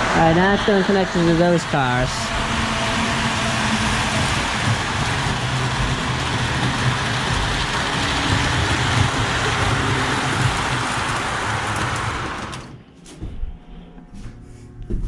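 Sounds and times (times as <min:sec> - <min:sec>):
model steam locomotive rumble and hiss: 0:00.0 - 0:12.7.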